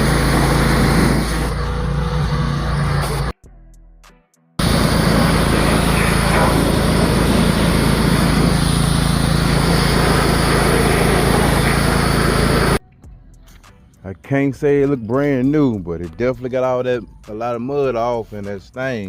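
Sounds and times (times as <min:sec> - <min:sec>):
small petrol engine running: 0:00.0 - 0:03.3, 0:04.6 - 0:12.8.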